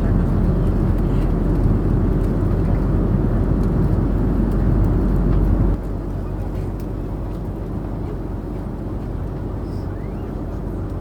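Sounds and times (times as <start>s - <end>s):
jet engine and airflow rumble: 0.0s - 11.0s.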